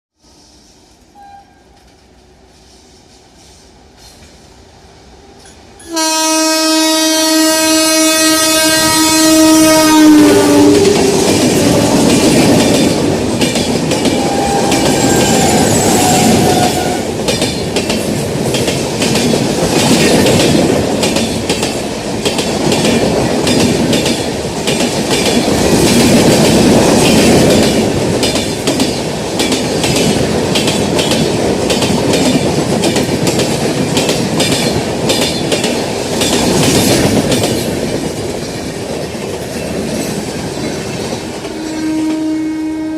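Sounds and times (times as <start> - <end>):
train coaches rumbling past: 0.2 - 42.9
locomotive twin-tone horn: 1.1 - 1.8, 5.8 - 12.1, 14.1 - 17.1, 41.5 - 42.9.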